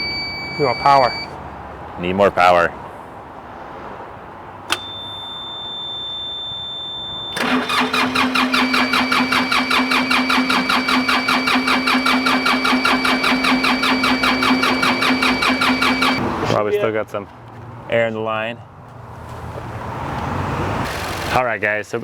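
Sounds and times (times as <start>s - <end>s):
steady electronic beep: 0.0s - 1.3s, 4.7s - 7.4s, 8.2s - 16.2s
diesel engine cranking on starter: 4.7s - 5.0s, 7.2s - 16.3s
key click: 4.7s - 5.1s.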